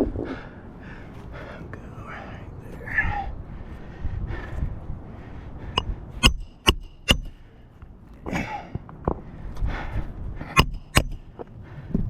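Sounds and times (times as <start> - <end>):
hammer hitting roofing nails: 6.2 - 7.4, 10.6 - 11.2.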